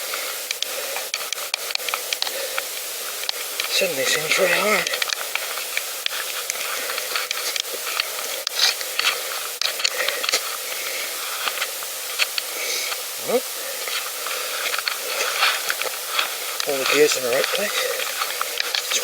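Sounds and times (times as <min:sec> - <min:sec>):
bicycle clicks and ticks: 0:00.0 - 0:13.0, 0:13.9 - 0:19.0.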